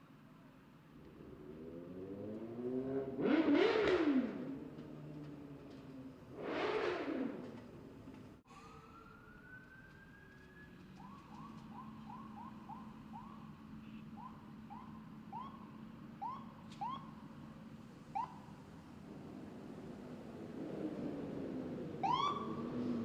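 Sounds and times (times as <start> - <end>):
emergency vehicle siren: 8.5 - 17.2, 21.9 - 23.0.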